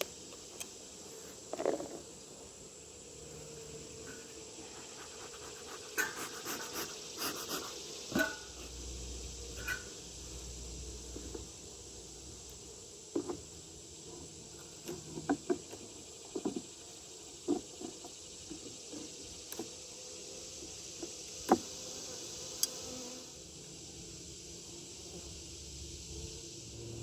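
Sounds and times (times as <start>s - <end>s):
bees buzzing: 0.0s - 14.8s.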